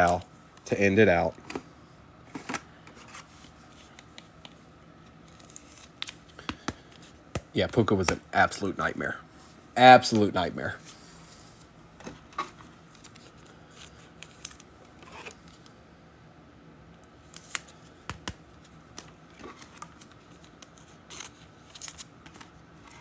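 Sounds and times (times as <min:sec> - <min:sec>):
card packaging clicks and scrapes: 0:02.3 - 0:08.2, 0:10.8 - 0:15.7, 0:17.2 - 0:23.0.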